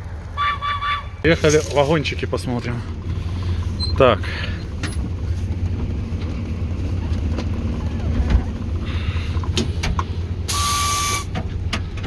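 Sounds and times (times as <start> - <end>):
diesel engine running: 0.0 - 12.0
hissing air burst: 10.5 - 11.3.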